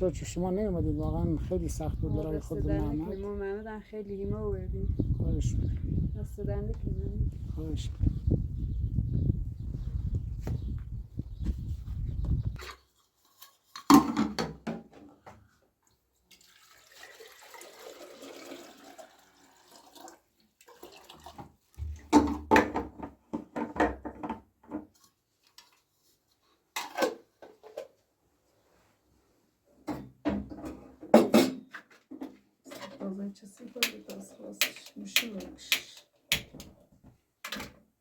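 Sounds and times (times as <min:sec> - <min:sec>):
water running: 0:16.4 - 0:21.4
dishes knocking and clattering: 0:29.9 - 0:31.7.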